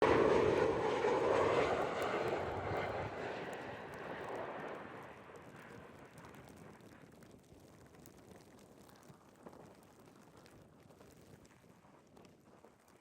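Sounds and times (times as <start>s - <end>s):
airliner engines roaring: 0.0s - 5.6s.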